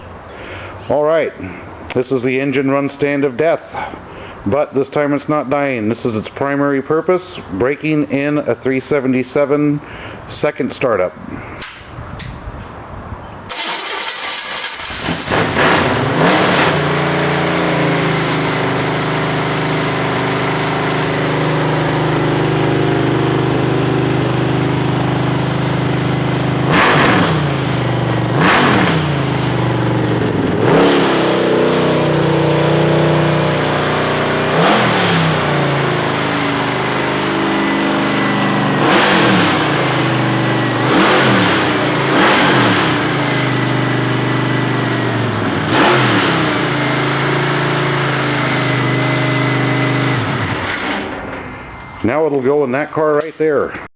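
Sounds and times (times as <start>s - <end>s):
engine throttle blips: 13.2s - 53.9s
engine starting: 13.5s - 16.8s
engine running at fast idle: 13.5s - 51.7s.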